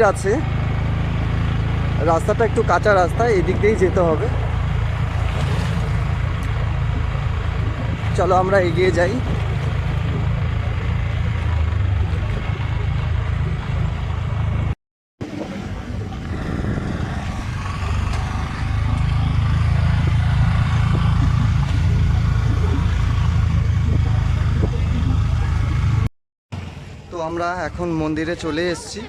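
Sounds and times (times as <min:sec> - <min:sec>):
motorcycle engine rumble: 0:00.0 - 0:29.0
wind buffeting microphone: 0:03.0 - 0:26.1.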